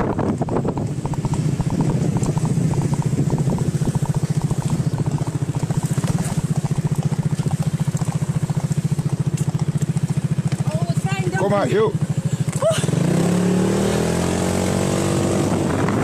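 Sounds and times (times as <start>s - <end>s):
motorbike engine putter: 0.0s - 10.7s.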